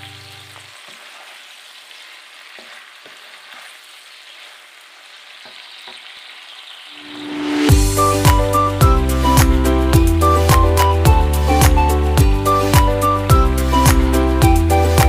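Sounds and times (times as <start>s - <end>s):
vegetables sizzling in a frying pan: 0.0s - 7.7s.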